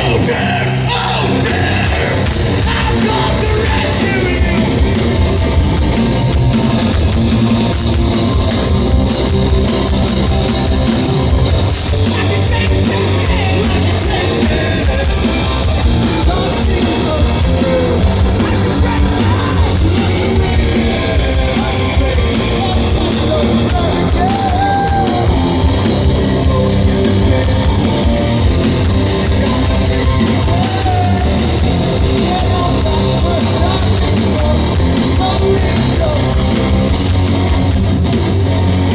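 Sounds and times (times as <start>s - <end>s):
shouted vocals: 0.0s - 5.0s, 12.0s - 36.4s
bass guitar: 0.0s - 38.9s
distorted guitars: 0.0s - 38.9s
pounding drums: 1.3s - 38.9s.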